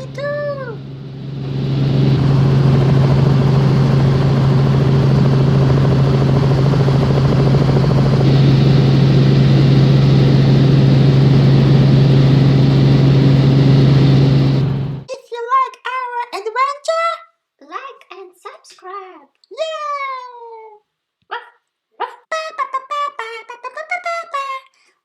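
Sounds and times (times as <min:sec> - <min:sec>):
toy helicopter rotor drone: 0:01.7 - 0:15.0.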